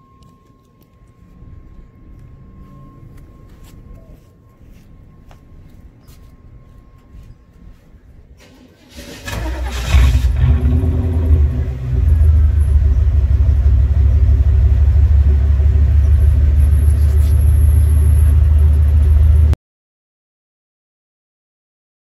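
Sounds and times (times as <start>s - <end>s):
car engine starting and idling: 8.3s - 19.6s.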